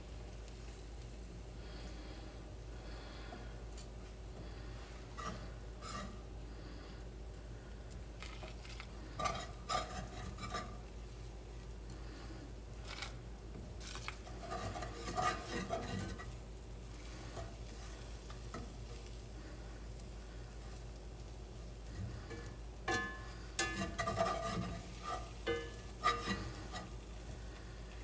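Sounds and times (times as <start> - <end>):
faint sizzle: 0.0 - 28.0
whisk scraping a pan: 4.5 - 6.3, 8.5 - 11.1, 13.8 - 19.3, 21.8 - 28.0.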